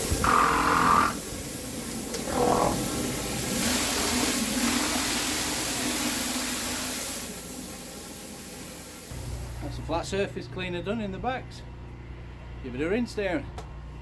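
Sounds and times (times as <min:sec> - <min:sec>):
pressure washer jet hissing: 0:00.0 - 0:09.7
washer engine running: 0:00.0 - 0:09.8.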